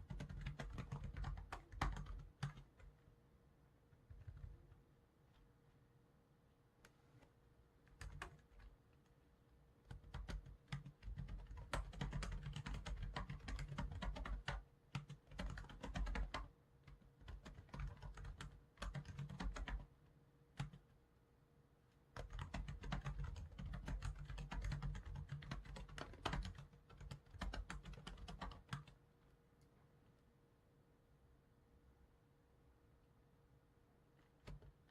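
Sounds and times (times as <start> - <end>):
keyboard typing: 0.0 - 3.0, 3.9 - 4.8, 7.8 - 9.0, 9.8 - 19.9, 20.6 - 20.8, 22.2 - 29.0, 34.2 - 34.9
faint steady hum: 0.0 - 34.9.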